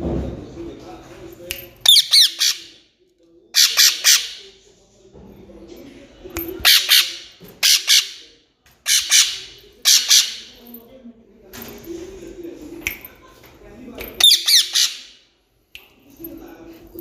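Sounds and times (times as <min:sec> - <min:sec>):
parrot squawking: 0:01.8 - 0:02.8, 0:03.5 - 0:04.4, 0:06.6 - 0:08.2, 0:08.8 - 0:10.6, 0:14.2 - 0:15.2.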